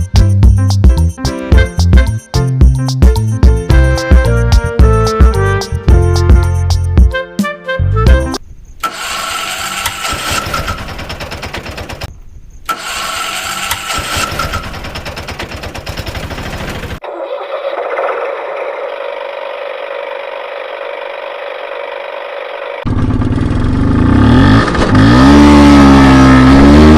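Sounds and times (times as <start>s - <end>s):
rattly vehicle engine running: 8.8s - 12.1s, 12.7s - 17.0s, 17.8s - 26.9s.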